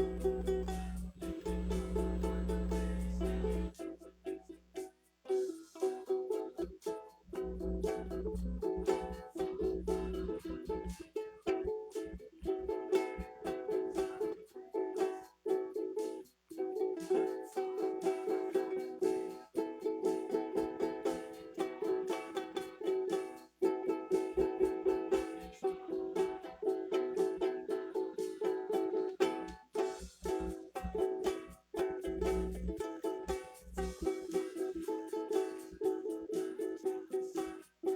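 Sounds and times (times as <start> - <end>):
guitar strumming chords: 0.0 - 3.8.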